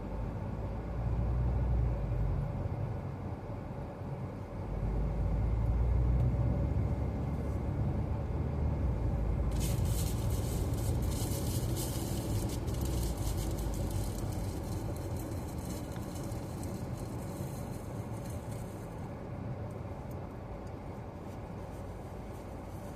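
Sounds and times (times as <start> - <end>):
car rumble on road: 0.0 - 22.9
hiss: 9.5 - 18.9.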